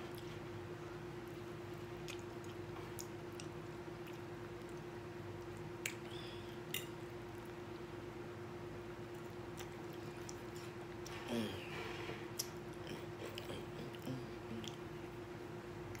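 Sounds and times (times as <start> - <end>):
faint steady hum: 0.0 - 16.0
person chewing food: 1.2 - 7.8, 9.1 - 11.6, 12.3 - 15.2.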